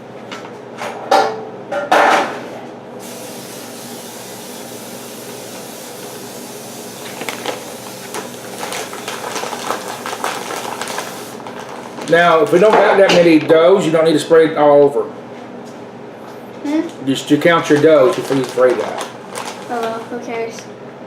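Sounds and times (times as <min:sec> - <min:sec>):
cooking spray hissing: 0:03.0 - 0:11.5.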